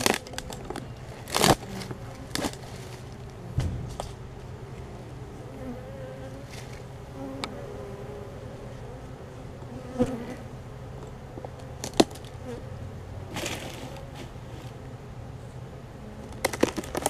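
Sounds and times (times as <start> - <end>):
bees buzzing: 0.0 - 16.5
sharp knock: 3.6 - 4.2.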